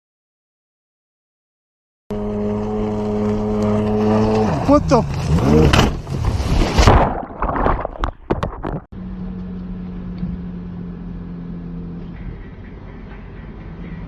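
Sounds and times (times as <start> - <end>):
car engine hum: 2.1 - 6.1, 9.0 - 14.0.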